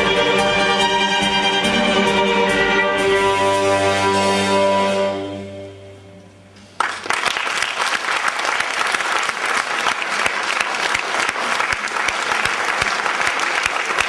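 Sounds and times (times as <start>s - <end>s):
string orchestra chord: 0.0s - 6.5s
audience applause: 6.7s - 14.0s.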